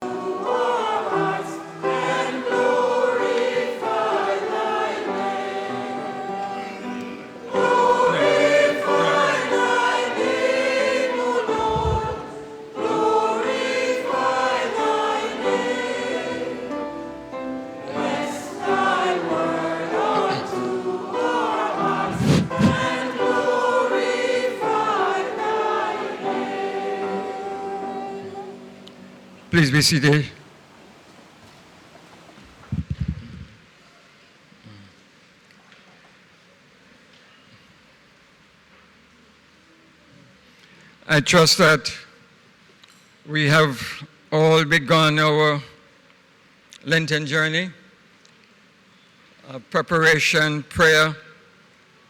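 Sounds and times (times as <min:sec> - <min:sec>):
choir singing a hymn: 0:00.0 - 0:31.4.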